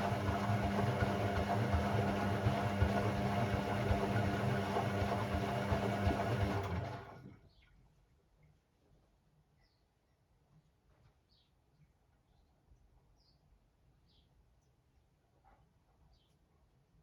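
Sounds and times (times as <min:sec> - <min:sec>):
washing machine drum turning: 0:00.0 - 0:07.2.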